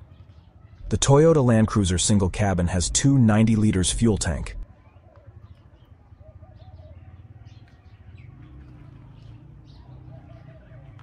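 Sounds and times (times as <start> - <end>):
birds chirping: 0.0 - 11.0
steady low hum: 0.8 - 4.7.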